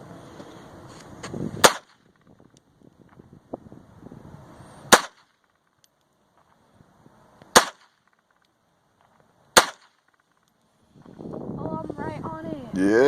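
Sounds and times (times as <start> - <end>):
gunshots: 1.6 - 2.0, 4.9 - 5.3, 7.5 - 8.0, 9.6 - 10.1.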